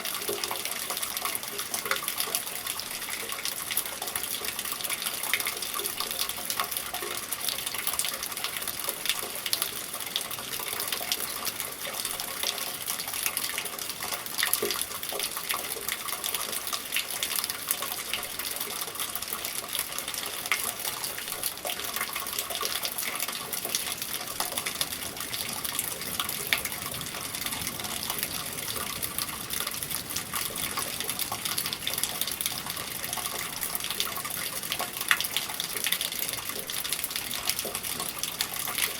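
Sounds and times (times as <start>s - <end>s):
steady rain: 0.0s - 38.9s
water gushing through a gutter: 0.0s - 38.9s.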